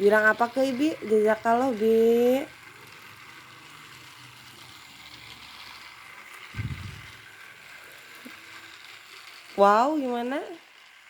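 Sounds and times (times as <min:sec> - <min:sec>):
low thump: 0:06.6 - 0:07.1.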